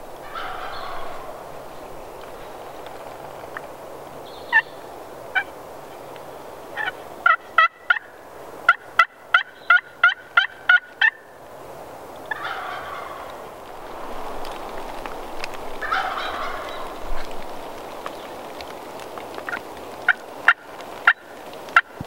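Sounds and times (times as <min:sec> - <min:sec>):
wild turkey calling: 0:00.2 - 0:03.6, 0:04.3 - 0:06.0, 0:06.7 - 0:11.3, 0:12.2 - 0:13.6, 0:15.1 - 0:17.4, 0:19.4 - 0:22.0.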